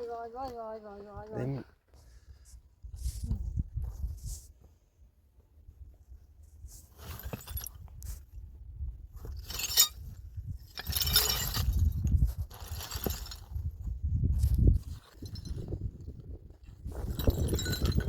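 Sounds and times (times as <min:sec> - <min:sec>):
hard objects clattering and clinking: 0:10.7 - 0:11.9.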